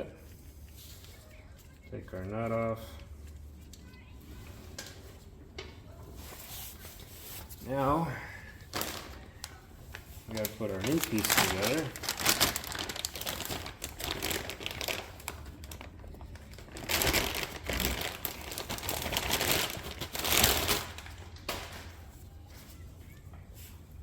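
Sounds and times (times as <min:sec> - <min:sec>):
packaging crinkling and rustling: 0:08.6 - 0:22.8.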